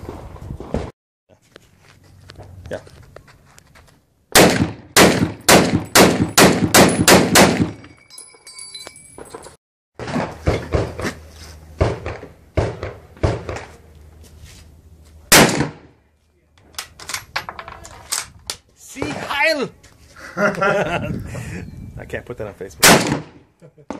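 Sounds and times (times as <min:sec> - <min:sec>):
rifle shots: 0:04.3 - 0:07.8, 0:15.3 - 0:15.9, 0:22.8 - 0:23.4.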